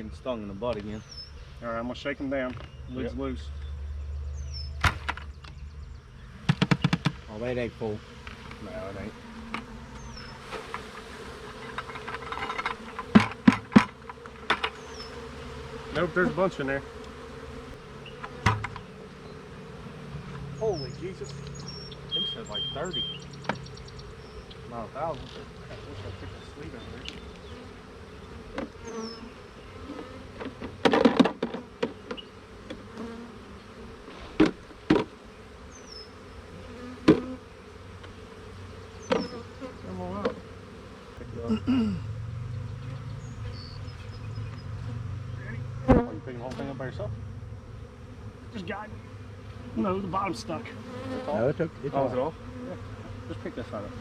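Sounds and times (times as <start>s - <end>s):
honey bees buzzing: 0.0s - 54.0s
sharp knocks: 6.4s - 7.2s, 11.8s - 14.8s, 18.2s - 18.9s
loud knocks: 18.3s - 18.8s.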